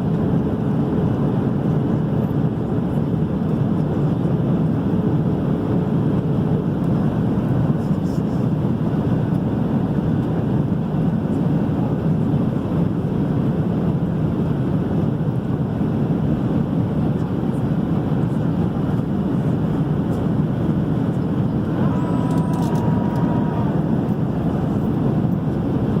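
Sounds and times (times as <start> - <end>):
airliner cabin engine noise: 0.0 - 26.0
faint steady hum: 18.8 - 26.0.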